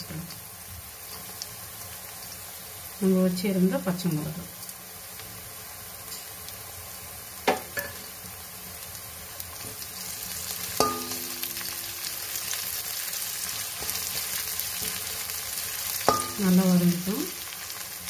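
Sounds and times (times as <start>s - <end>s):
onions sizzling in hot oil: 0.0s - 18.0s
metal spatula knocking on pan: 10.8s - 11.4s, 16.1s - 16.4s.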